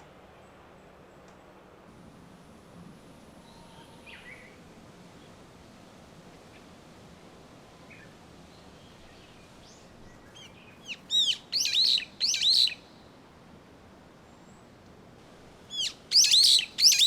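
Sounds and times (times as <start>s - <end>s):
faint background hiss: 0.0s - 17.0s
songbird chirping: 7.9s - 13.1s, 15.7s - 17.0s.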